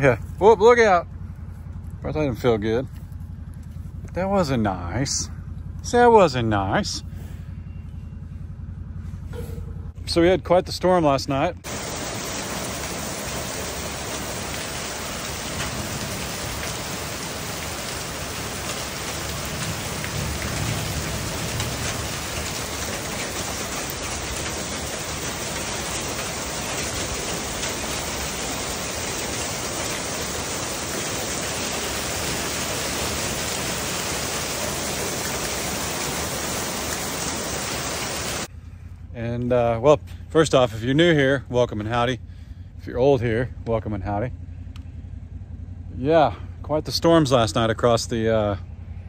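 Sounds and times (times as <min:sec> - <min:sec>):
low rumble: 0:00.0 - 0:49.0
rain on concrete and gravel: 0:11.6 - 0:38.5.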